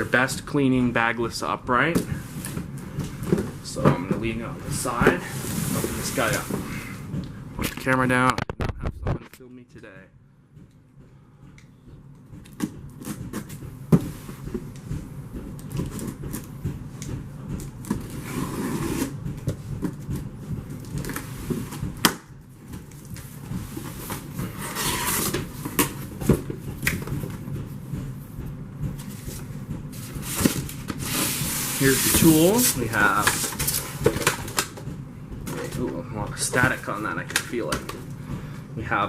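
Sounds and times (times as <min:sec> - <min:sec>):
packaging rustling and scraping: 0:02.0 - 0:06.9, 0:17.6 - 0:21.9, 0:22.6 - 0:27.4, 0:29.0 - 0:34.8.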